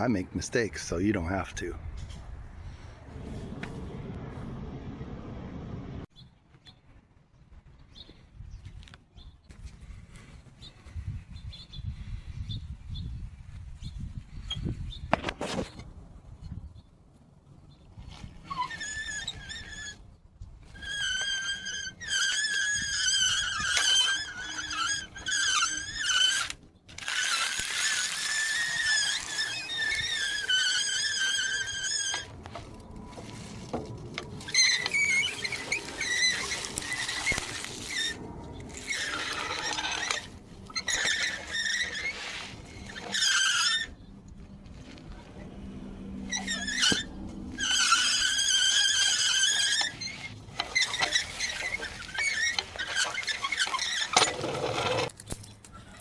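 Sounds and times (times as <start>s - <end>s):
high-pitched squealing: 20.7s - 44.1s, 46.2s - 55.1s.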